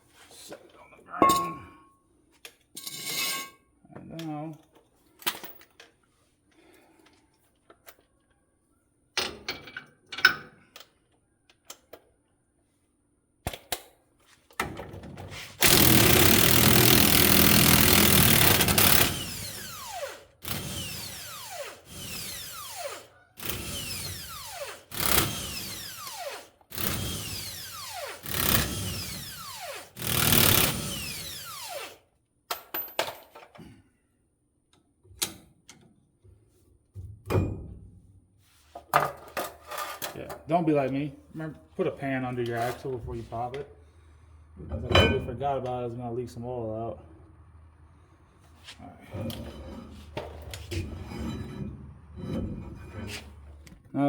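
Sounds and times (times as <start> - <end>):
impact wrench bursts: 15.5 - 32.0.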